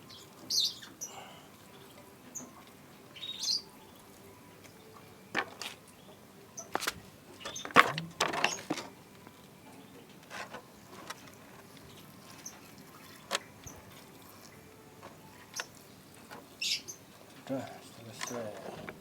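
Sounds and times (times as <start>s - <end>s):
water splashes and knocks: 6.8s - 9.0s, 12.4s - 13.8s.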